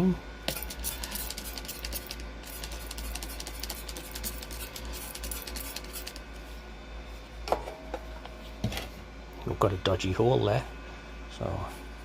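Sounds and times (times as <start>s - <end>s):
steady low hum: 0.0s - 12.0s
brush tapping and scrubbing metal: 0.5s - 6.2s.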